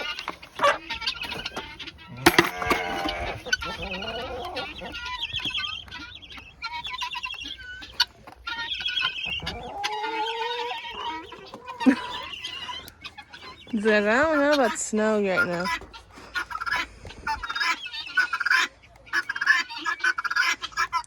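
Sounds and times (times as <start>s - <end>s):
chickens clucking and calling: 0.0s - 21.0s.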